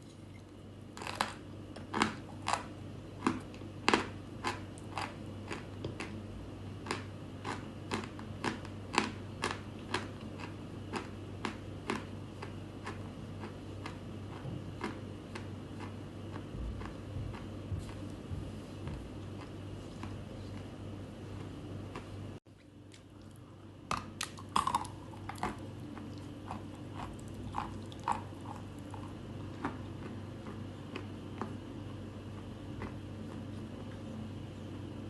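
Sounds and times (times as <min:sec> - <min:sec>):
chalk crunching when chewed: 0:24.0 - 0:31.6.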